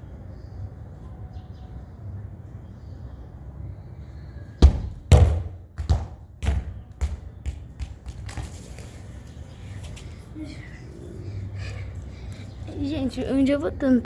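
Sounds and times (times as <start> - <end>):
ball bouncing on hard ground: 4.6 - 9.1.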